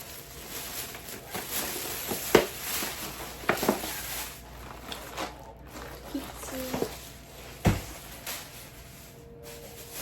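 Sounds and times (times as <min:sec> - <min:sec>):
groceries rustling: 0:00.0 - 0:10.0
groceries knocking on counter: 0:00.9 - 0:04.1, 0:05.1 - 0:08.1.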